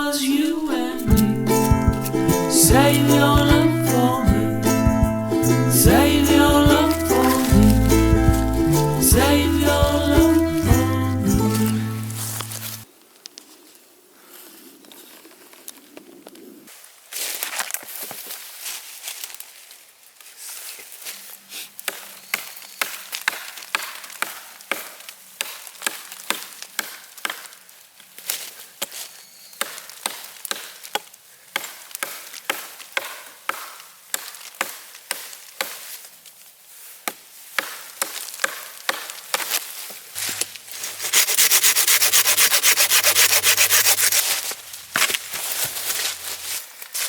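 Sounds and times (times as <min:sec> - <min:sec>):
wood being shaved by hand: 0:00.3 - 0:12.9, 0:40.2 - 0:46.6.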